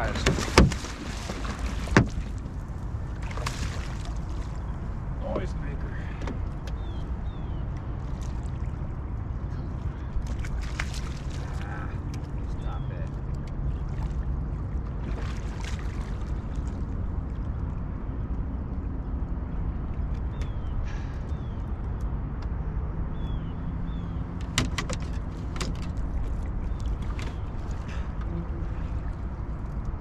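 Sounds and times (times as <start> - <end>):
wind and river current: 0.0 - 30.0
sharp knocks: 0.2 - 1.0, 1.8 - 2.3.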